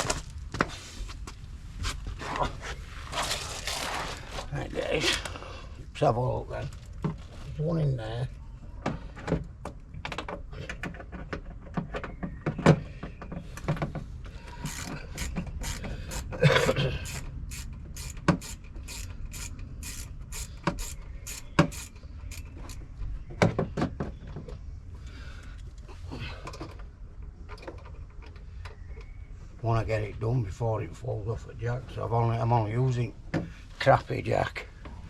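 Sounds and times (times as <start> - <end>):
knocks and clunks of tools: 8.8 - 17.2, 20.6 - 24.6
ratchet wrench clicking: 14.6 - 16.4, 17.0 - 22.8.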